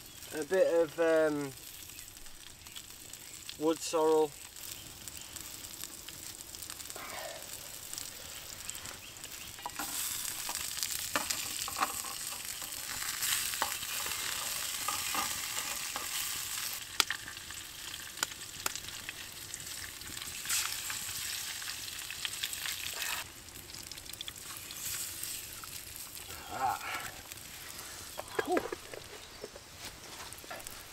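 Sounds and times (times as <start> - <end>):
mushrooms sizzling in oil: 0.0 - 28.2.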